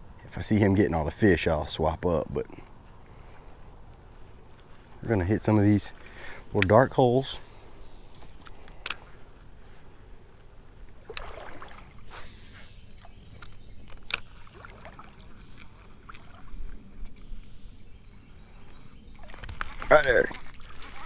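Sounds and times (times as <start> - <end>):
water splash: 11.0 - 13.2, 14.2 - 16.6.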